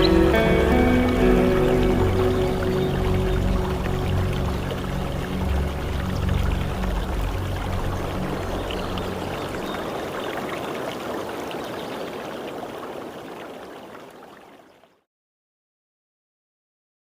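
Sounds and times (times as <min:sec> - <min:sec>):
low hum: 0:00.0 - 0:09.8
rain hiss: 0:00.0 - 0:14.3.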